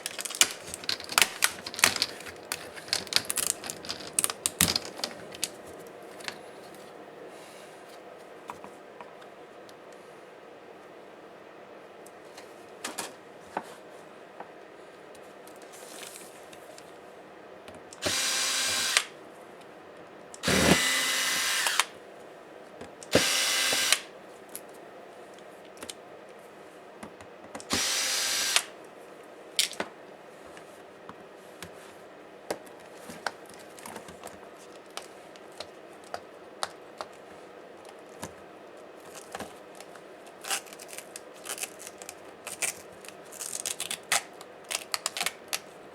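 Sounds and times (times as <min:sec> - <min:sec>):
electric screwdriver running: 0:18.0 - 0:19.1, 0:20.4 - 0:21.9, 0:23.1 - 0:24.1, 0:27.7 - 0:28.7.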